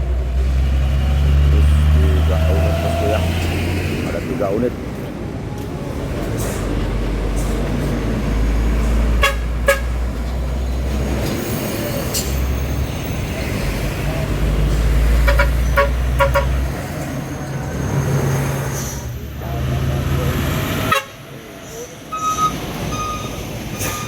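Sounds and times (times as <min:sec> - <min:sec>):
truck engine rumbling: 0:00.0 - 0:24.0
truck horn toots: 0:09.1 - 0:10.0, 0:15.2 - 0:16.8, 0:20.9 - 0:21.2.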